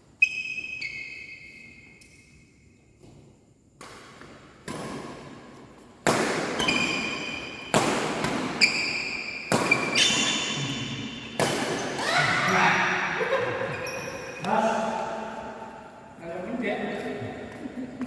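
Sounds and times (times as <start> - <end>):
shoe squeaks: 0.1 - 2.7, 6.6 - 7.7, 8.5 - 13.0, 13.7 - 14.9
rackets hitting shuttlecock: 3.8 - 13.1.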